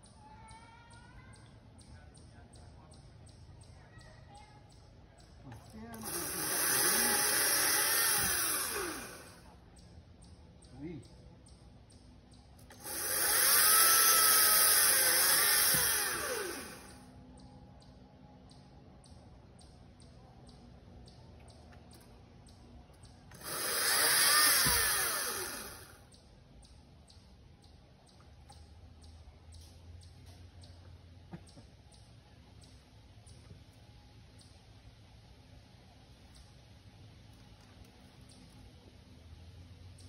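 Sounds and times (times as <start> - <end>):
electric chainsaw cutting wood: 5.9 - 9.4, 12.6 - 17.0, 23.3 - 26.0.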